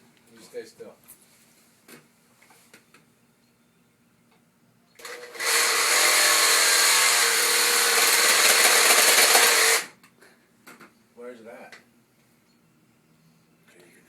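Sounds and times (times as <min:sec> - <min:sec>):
electric power tool running: 0:05.0 - 0:09.9.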